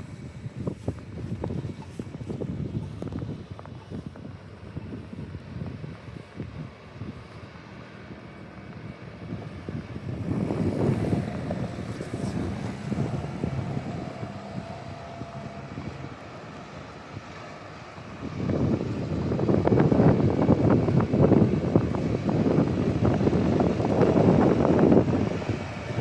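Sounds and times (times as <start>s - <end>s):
car passing: 7.2s - 26.0s.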